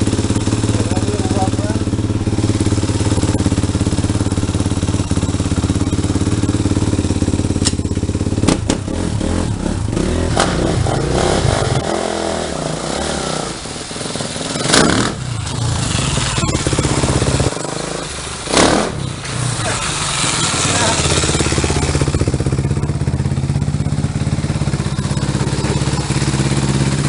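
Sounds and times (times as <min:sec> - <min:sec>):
motorcycle engine idling and revving: 0:00.0 - 0:27.0.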